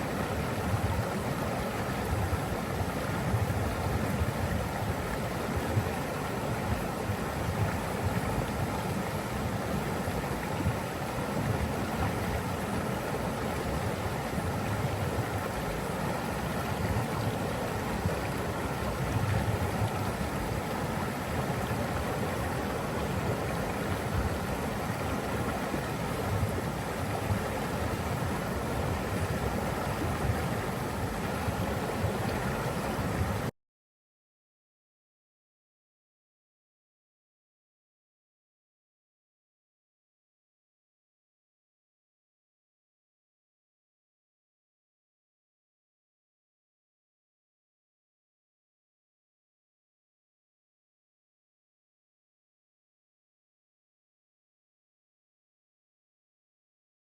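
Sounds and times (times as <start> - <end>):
rushing water: 0.0 - 33.5.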